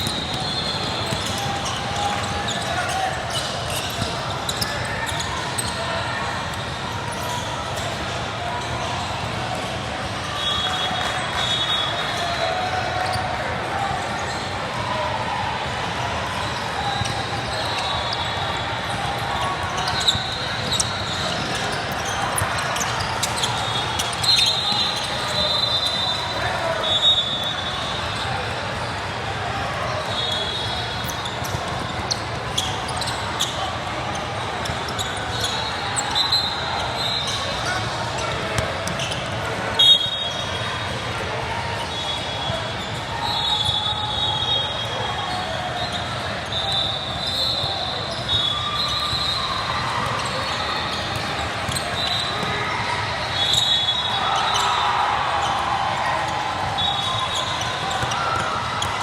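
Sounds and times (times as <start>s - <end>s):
basketball bouncing on court: 0.0s - 2.6s
shoe squeaks: 0.0s - 8.0s, 16.3s - 28.9s, 29.5s - 40.9s, 41.7s - 55.6s, 56.2s - 59.0s
murmur of voices: 0.0s - 59.0s.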